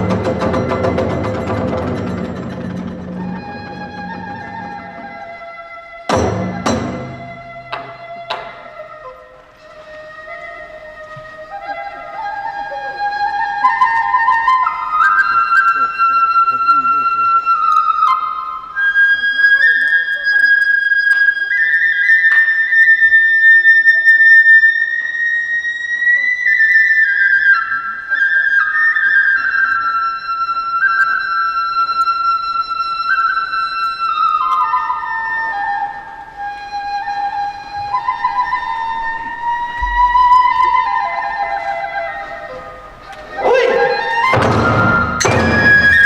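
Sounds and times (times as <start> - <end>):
bamboo flute melody: 0.0 - 46.0.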